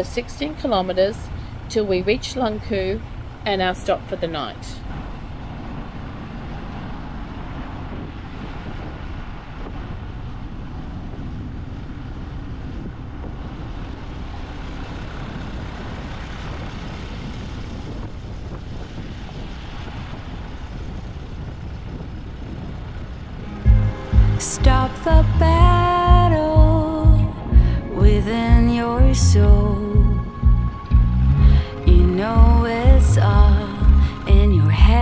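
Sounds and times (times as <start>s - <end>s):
motorbike engine: 0.0s - 8.3s, 22.0s - 35.0s
road noise: 0.0s - 35.0s.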